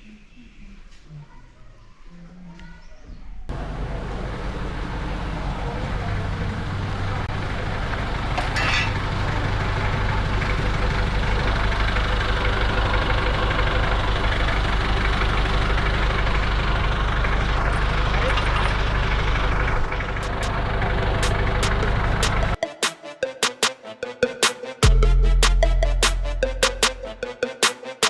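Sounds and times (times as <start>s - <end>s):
diesel engine running: 3.5s - 22.6s, 24.8s - 27.4s
engine clatter: 3.5s - 22.6s.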